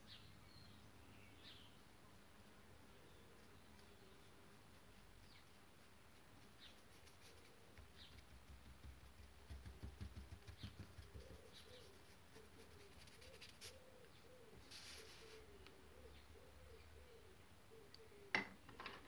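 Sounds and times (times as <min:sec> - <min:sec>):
faint high bird chirps: 0:06.4 - 0:08.4, 0:10.4 - 0:18.8
bird cooing: 0:10.9 - 0:18.8.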